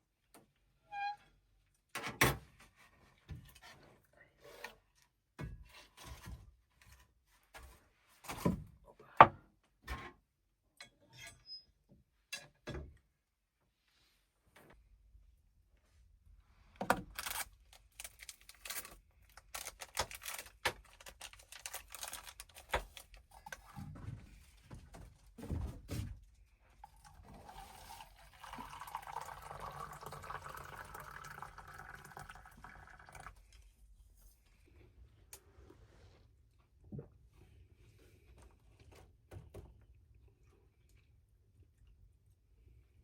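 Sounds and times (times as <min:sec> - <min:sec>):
liquid pouring: 0:26.8 - 0:33.5.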